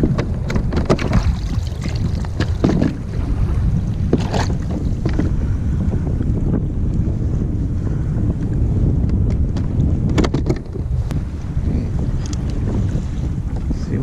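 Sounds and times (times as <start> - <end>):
wind buffeting microphone: 0.0 - 14.0
knocks or splashes: 0.2 - 5.3.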